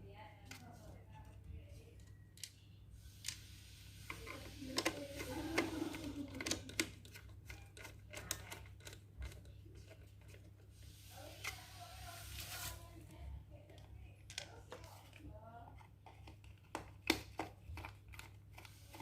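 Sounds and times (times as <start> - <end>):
small plastic parts clicking: 4.1 - 10.4.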